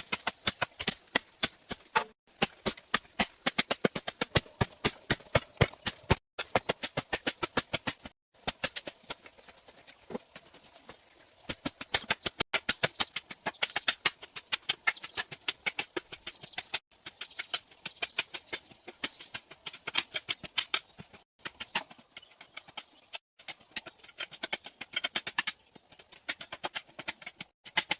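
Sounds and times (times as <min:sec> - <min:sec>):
rapid tapping and knocking: 0:00.0 - 0:27.9.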